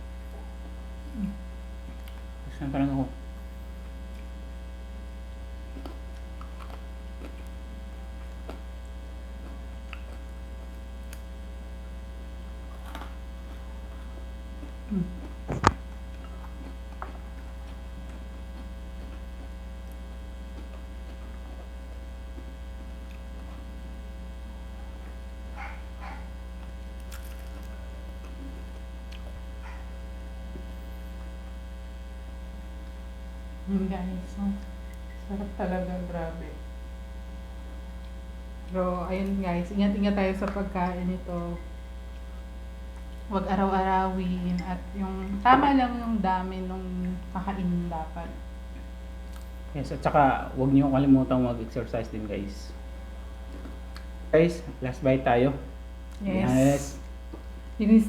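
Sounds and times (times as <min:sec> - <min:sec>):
electrical mains hum: 0:00.0 - 0:58.0.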